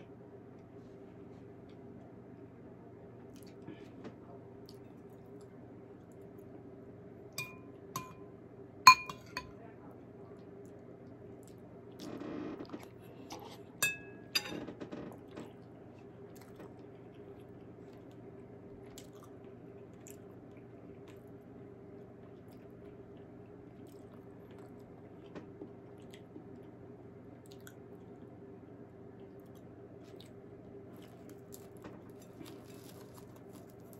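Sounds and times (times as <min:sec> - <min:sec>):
faint steady hum: 0:00.0 - 0:33.9
metal spoon clinking on bowl: 0:07.4 - 0:08.2, 0:08.9 - 0:09.6, 0:13.8 - 0:14.6
person chewing: 0:16.0 - 0:21.3, 0:27.4 - 0:28.3, 0:29.2 - 0:33.9.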